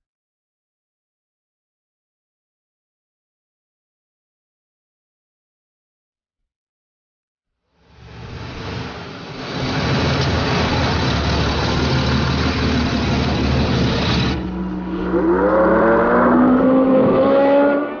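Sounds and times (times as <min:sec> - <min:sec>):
racing car engines: 0:07.8 - 0:18.0
single engine accelerating: 0:07.9 - 0:18.0.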